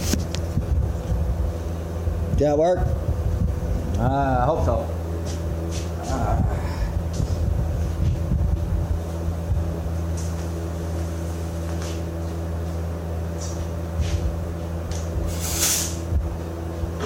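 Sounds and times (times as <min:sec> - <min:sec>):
short hiss: 0:15.3 - 0:16.0.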